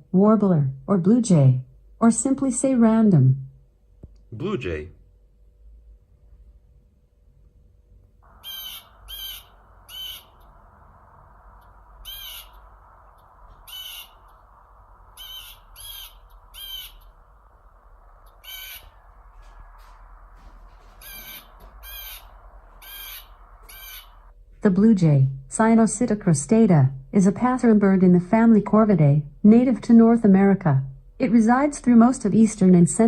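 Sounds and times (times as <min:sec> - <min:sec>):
background hiss: 0:08.1 - 0:24.5
harsh jay calls: 0:08.2 - 0:24.3.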